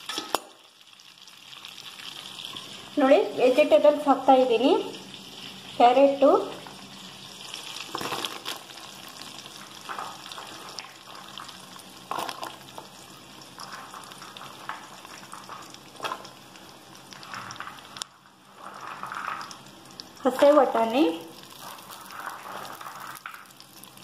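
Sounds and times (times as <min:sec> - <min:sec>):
carrots sizzling in butter: 0:00.0 - 0:24.0.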